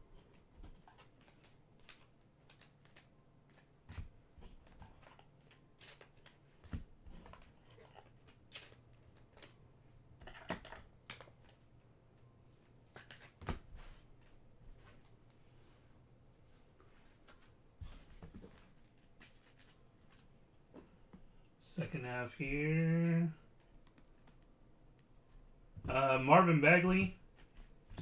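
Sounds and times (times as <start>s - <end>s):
trading cards handled: 0.2s - 9.6s, 10.2s - 15.4s, 17.0s - 20.3s.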